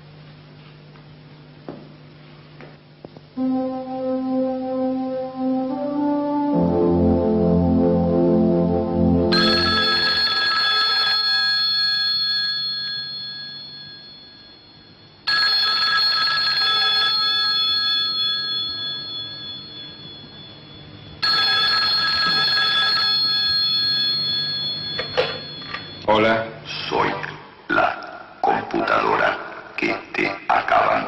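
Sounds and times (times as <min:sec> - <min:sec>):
bell telephone ringing: 0:09.3 - 0:26.1.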